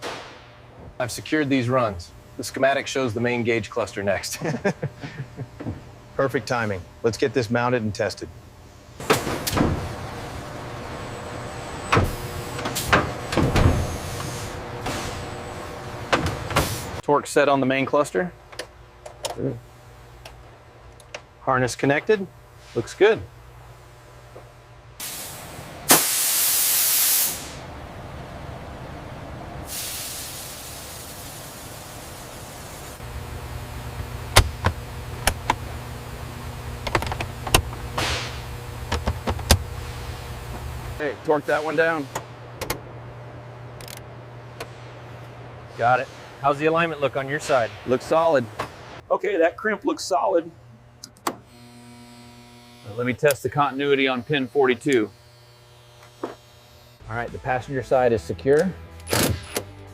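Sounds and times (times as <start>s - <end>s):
steady factory hum: 0.0s - 59.9s
loud hiss of air: 16.5s - 17.0s, 25.0s - 27.7s, 29.6s - 33.0s, 37.9s - 38.5s
assembly knocks and clunks: 34.3s - 35.7s, 36.8s - 39.7s.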